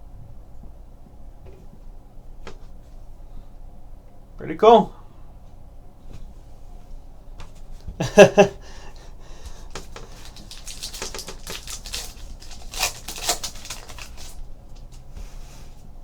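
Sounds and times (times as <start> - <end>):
cards clicking: 8.9 - 15.1
crinkling card wrapper: 8.9 - 15.1.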